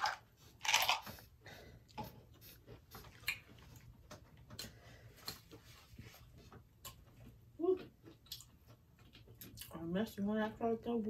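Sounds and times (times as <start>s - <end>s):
chewing: 1.9s - 9.9s.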